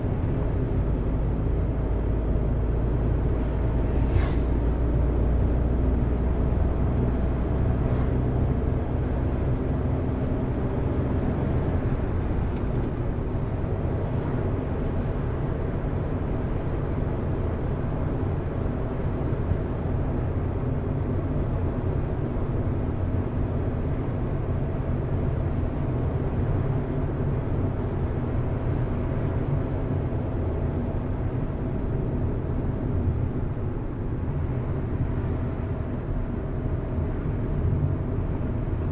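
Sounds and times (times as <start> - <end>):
tyre and road noise: 0.0 - 17.1
car engine hum: 0.0 - 38.9.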